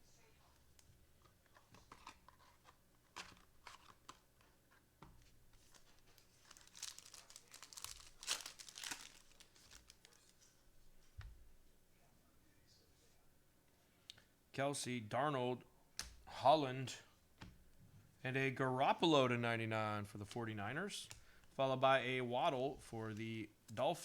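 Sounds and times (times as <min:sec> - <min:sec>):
wrapper crinkling and tearing: 0:05.7 - 0:10.4.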